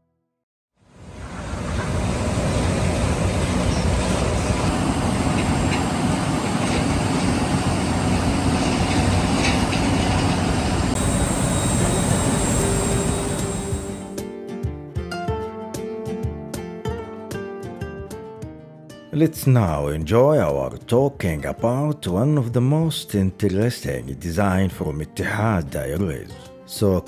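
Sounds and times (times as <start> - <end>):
aircraft and vehicle engines rumbling: 0.9 - 14.2
high hiss: 1.0 - 14.2.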